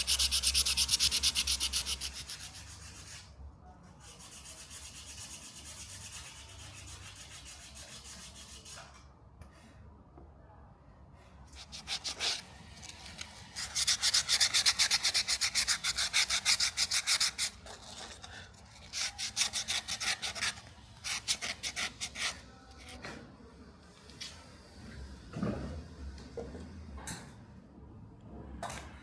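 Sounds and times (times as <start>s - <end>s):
knife blade rubbing on abrasive: 0.0s - 3.1s.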